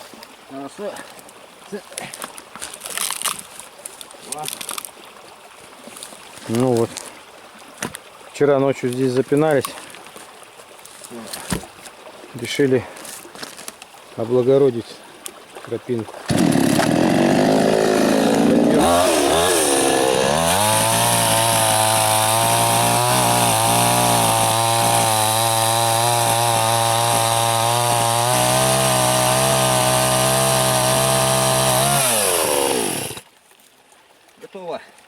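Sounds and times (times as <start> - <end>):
chainsaw sawing log: 16.3 - 33.2.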